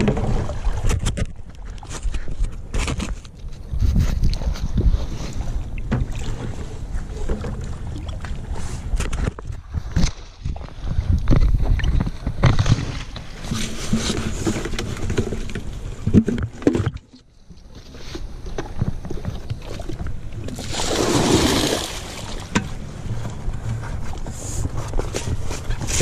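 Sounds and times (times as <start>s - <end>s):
water pouring and splashing: 0.0s - 1.8s, 3.9s - 17.2s, 18.8s - 22.7s
water sloshing in bucket: 4.1s - 26.0s.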